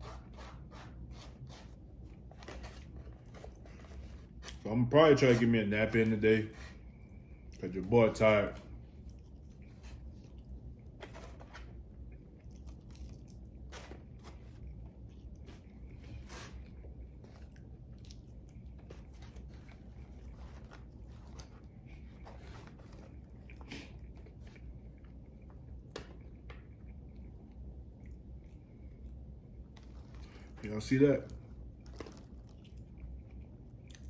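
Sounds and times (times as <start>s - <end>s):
man chewing crunchy food: 12.0s - 16.0s, 16.6s - 30.5s, 31.4s - 34.0s.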